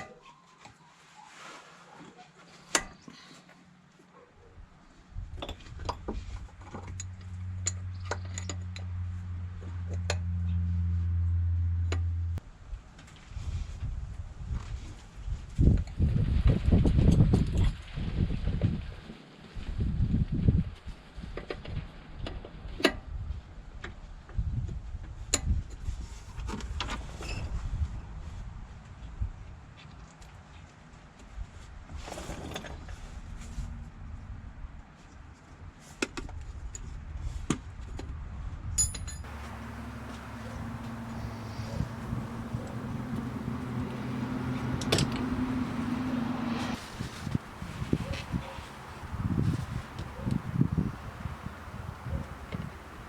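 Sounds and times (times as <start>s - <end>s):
low steady hum: 39.3s - 46.8s
rustling and handling noise: 46.6s - 50.4s.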